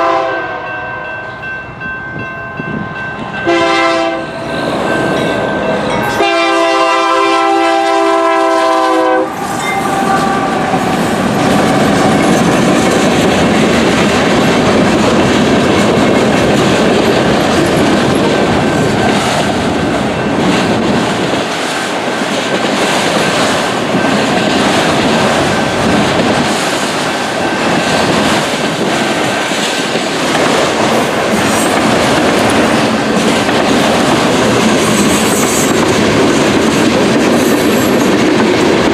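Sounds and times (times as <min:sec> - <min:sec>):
locomotive air horn: 0:00.0 - 0:00.7, 0:03.4 - 0:04.4, 0:06.0 - 0:11.0
electronic crossing bell ringing: 0:00.3 - 0:06.3, 0:09.6 - 0:10.1
train cars clacking over rails: 0:01.2 - 0:38.9
freight train wheel rumble: 0:01.3 - 0:38.9.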